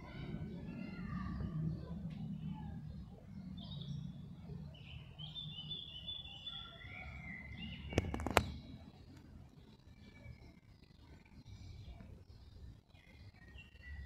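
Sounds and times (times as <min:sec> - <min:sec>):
small birds chirping: 0:00.0 - 0:14.0
sharp clicks: 0:07.9 - 0:08.6.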